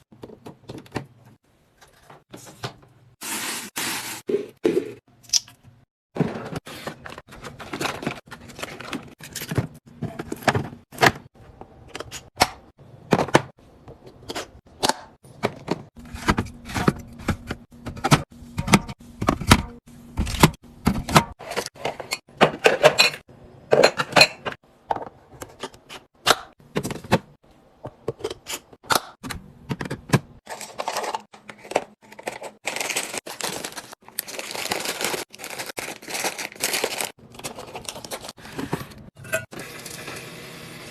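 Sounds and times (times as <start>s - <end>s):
plastic packaging crinkling: 32.1s - 38.5s.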